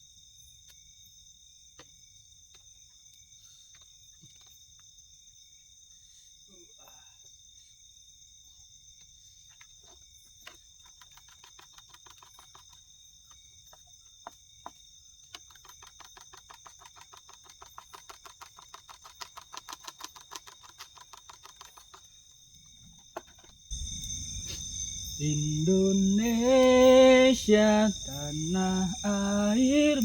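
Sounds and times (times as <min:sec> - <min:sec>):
rapid regular clicks: 0:10.5 - 0:12.9, 0:15.3 - 0:22.1
high-pitched insect drone: 0:14.7 - 0:30.0.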